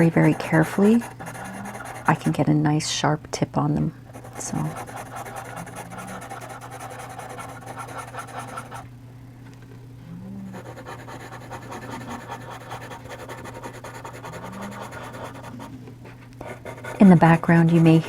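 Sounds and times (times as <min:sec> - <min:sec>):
pet snoring: 0:00.0 - 0:02.2
pencil scratching on paper: 0:00.0 - 0:02.4, 0:04.1 - 0:08.8, 0:10.5 - 0:15.7, 0:16.4 - 0:18.0.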